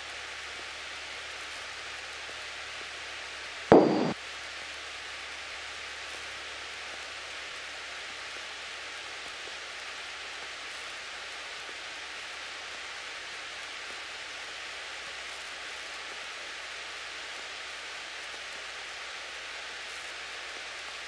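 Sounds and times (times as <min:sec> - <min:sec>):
low hum: 0:03.7 - 0:04.2
faint steady whine: 0:03.7 - 0:04.8.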